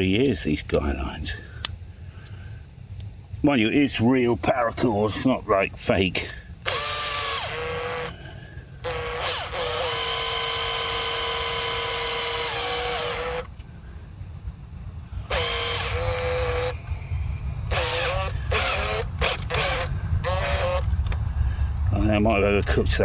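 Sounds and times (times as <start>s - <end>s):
cordless drill running in bursts: 6.6s - 8.2s, 8.8s - 13.5s, 15.2s - 16.9s, 17.6s - 20.9s.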